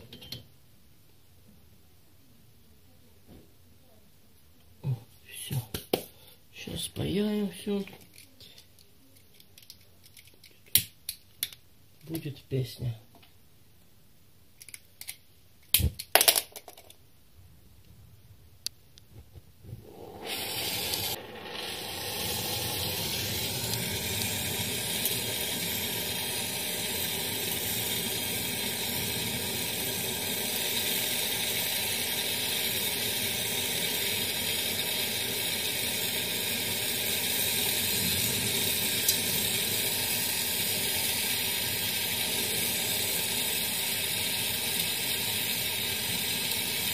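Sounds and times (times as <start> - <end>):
gas torch hissing: 19.6 - 46.9.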